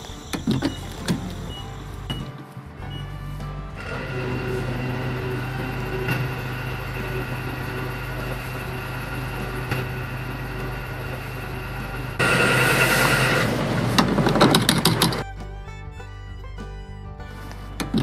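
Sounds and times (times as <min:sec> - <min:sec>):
small motor humming: 0:03.8 - 0:13.5.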